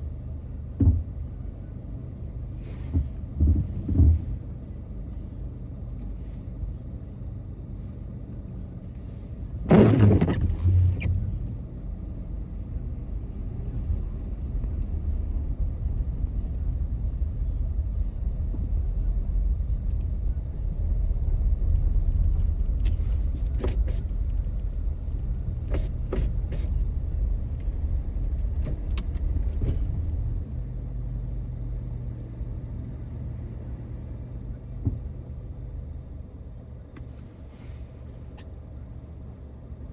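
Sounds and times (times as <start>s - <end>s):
car engine and road rumble: 0.0s - 39.9s
loud thump: 9.7s - 11.4s.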